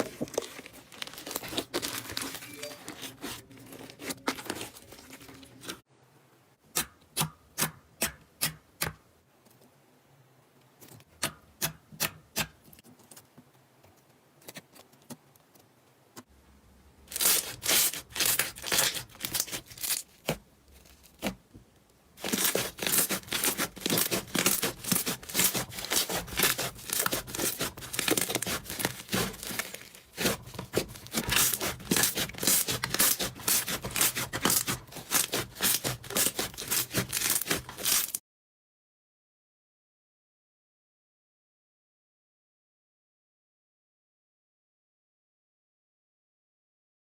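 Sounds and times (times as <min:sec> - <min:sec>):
slime crackling and popping: 0:22.2 - 0:38.2.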